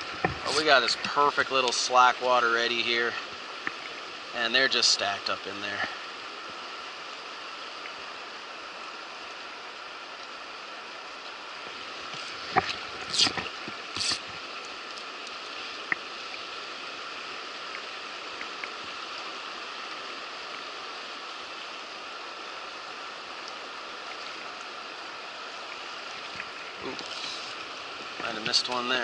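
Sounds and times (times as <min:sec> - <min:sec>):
river water rushing: 0:00.0 - 0:29.0
short hissing bursts: 0:13.1 - 0:14.3, 0:27.0 - 0:27.7.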